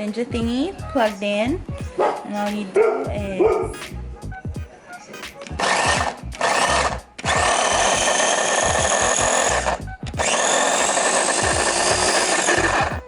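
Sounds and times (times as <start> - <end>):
food chopper motor whirring: 5.4 - 13.0.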